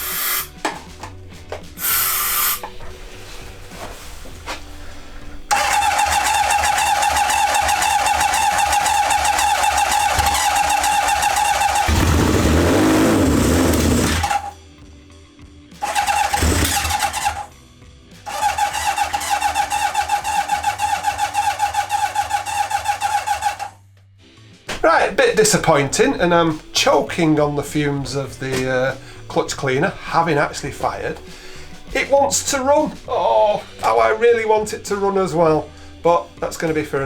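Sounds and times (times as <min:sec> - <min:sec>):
electric starter whining: 0:05.3 - 0:14.6, 0:15.8 - 0:17.5, 0:18.2 - 0:23.8
motorcycle engine firing roughly: 0:05.5 - 0:14.6, 0:15.8 - 0:17.5, 0:18.3 - 0:23.8.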